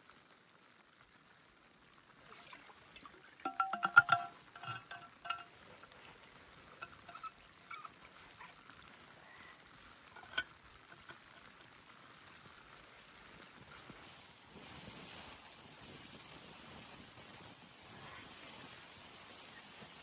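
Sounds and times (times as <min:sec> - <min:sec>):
clatter of light clinks: 0:03.4 - 0:05.6.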